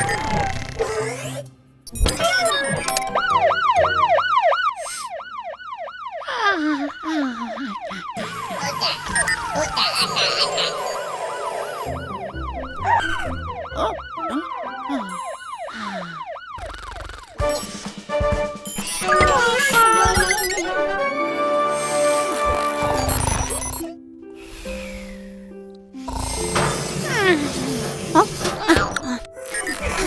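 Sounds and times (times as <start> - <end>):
jingly sound effects: 1.9 - 3.9, 7.5 - 16.7, 17.4 - 21.1, 21.7 - 24.0, 26.1 - 30.0
cartoon siren wailing: 2.0 - 17.6, 18.6 - 21.4.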